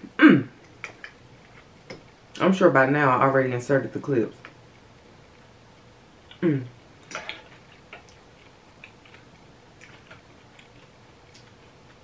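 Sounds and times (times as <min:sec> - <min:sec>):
person humming mm: 0:06.3 - 0:06.8.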